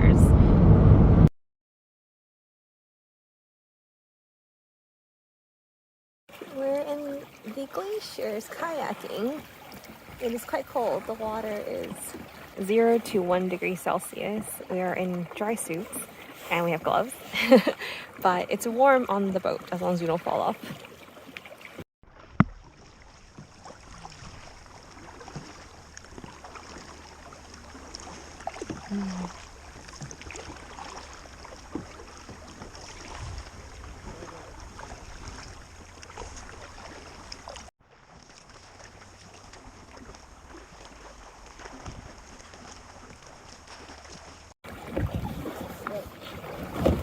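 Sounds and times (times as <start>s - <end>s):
wind on microphone: 0.0s - 1.3s, 32.5s - 36.8s, 44.7s - 47.0s
paddle strokes: 6.3s - 47.0s
water lapping against hull: 6.3s - 47.0s.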